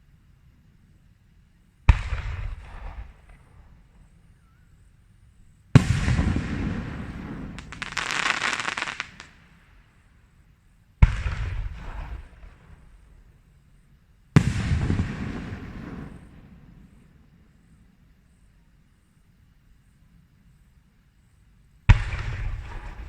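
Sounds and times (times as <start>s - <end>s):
fireworks bangs echoing: 5.8s - 9.8s, 14.4s - 16.8s, 21.9s - 23.0s
fireworks crackling burst: 5.8s - 10.1s.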